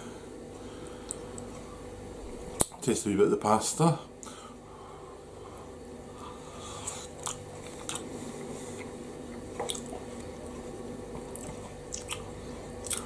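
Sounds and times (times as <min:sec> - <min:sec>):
faint steady hum: 0:00.0 - 0:13.0
person chewing: 0:06.2 - 0:13.0.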